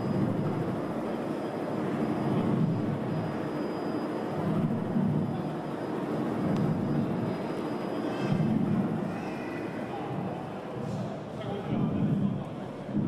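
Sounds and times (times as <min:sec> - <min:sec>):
aircraft engine rumble: 0:00.0 - 0:09.2
high whine: 0:00.0 - 0:09.2.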